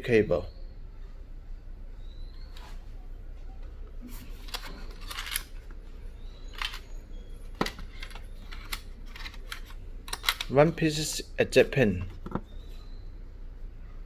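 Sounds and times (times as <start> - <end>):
steady low hum: 0.0 - 14.0
packaging clicking and rustling: 4.1 - 10.6.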